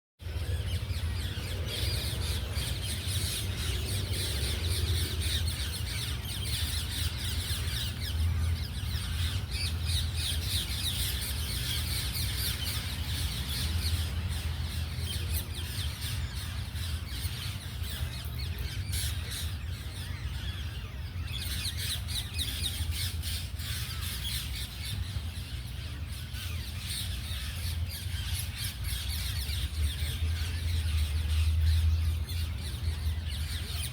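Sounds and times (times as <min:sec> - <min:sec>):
steady low rumble: 0:00.2 - 0:18.8
birds squawking and chattering: 0:00.2 - 0:33.9.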